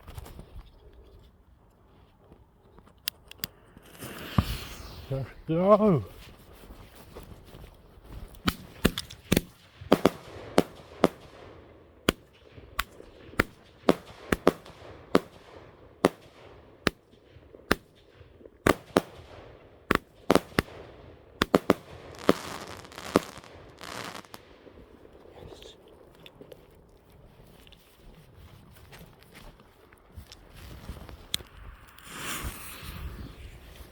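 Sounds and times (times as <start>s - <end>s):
firework hissing and crackling: 3.7s - 5.5s, 19.9s - 20.8s, 21.4s - 24.4s, 31.6s - 33.9s
firework bangs: 3.8s - 5.5s, 8.4s - 24.9s, 32.0s - 33.9s.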